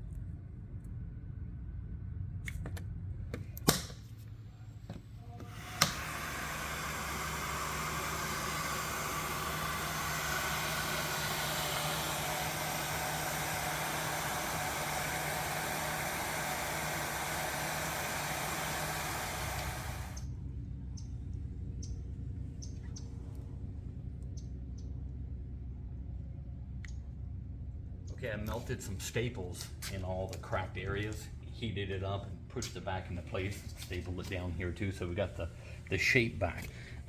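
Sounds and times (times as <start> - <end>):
heat gun blowing: 5.4 - 20.3.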